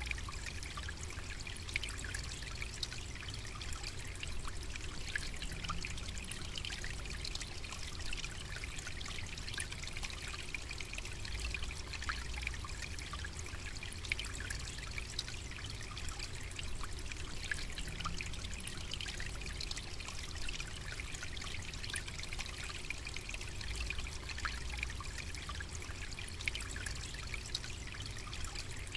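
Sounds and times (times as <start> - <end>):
babbling water trickling: 0.0 - 28.9.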